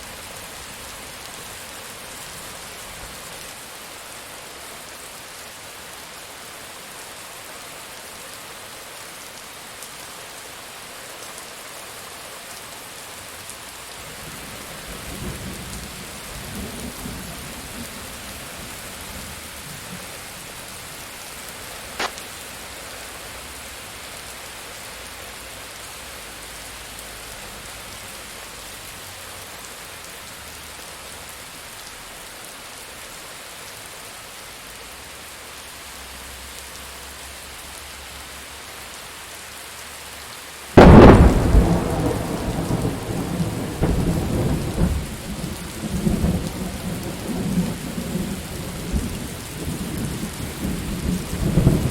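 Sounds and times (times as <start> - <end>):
rain falling: 0.0 - 51.9
sharp click: 22.0 - 22.2
thunderclap rumbling: 40.8 - 46.8.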